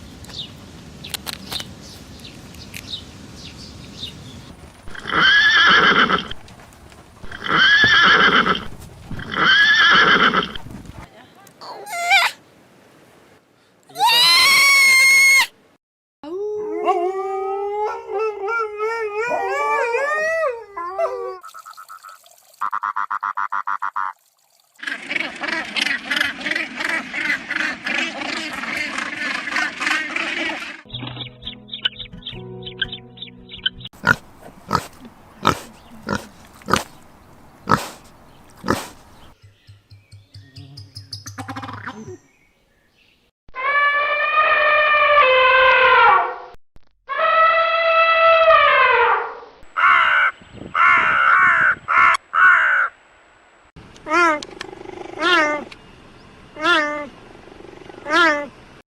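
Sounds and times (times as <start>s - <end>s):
dog howling: 16.3s - 21.4s
animal making harsh calls: 24.8s - 30.9s, 54.1s - 55.7s, 57.7s - 58.5s.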